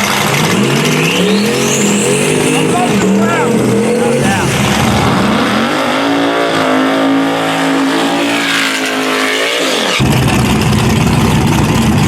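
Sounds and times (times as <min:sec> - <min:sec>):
race car engine at full throttle: 0:00.0 - 0:12.0
engine rumbling near idle: 0:10.0 - 0:12.0.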